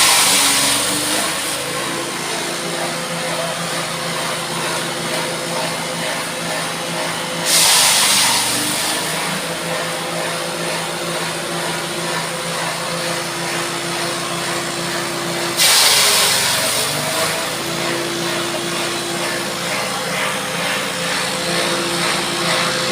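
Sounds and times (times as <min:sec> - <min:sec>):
loud rushes of chopping: 0:00.0 - 0:03.0, 0:07.4 - 0:09.7, 0:15.4 - 0:22.9
grass chopper machine running: 0:00.0 - 0:22.9.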